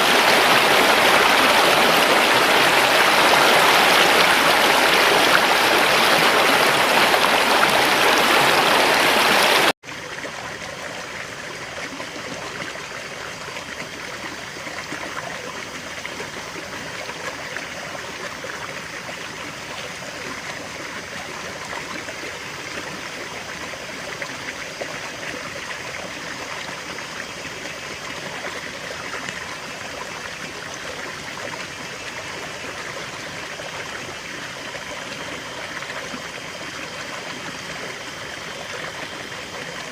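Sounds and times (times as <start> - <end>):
river water rushing: 0.0 - 9.8
thin stream of water: 0.0 - 39.9.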